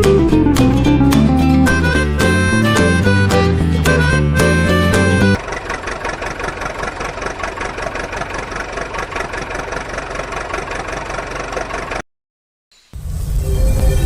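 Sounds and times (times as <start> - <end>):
engine idling with knocking: 3.8 - 12.0.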